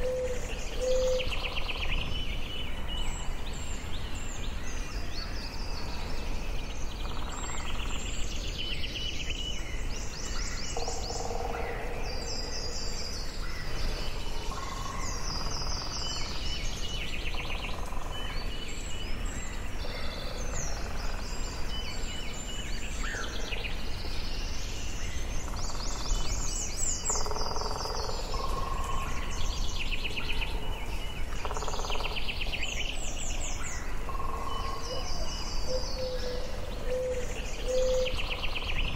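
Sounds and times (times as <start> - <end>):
lower bird calls: 0.0 - 2.1, 25.4 - 38.9
songbirds singing: 0.0 - 38.9.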